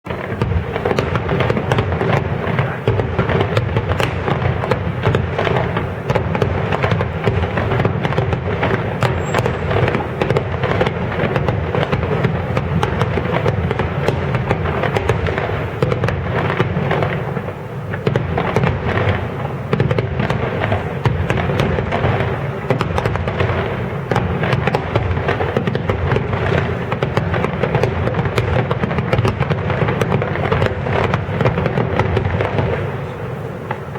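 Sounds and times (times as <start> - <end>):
fireworks bursts and crackling: 0.0 - 33.9.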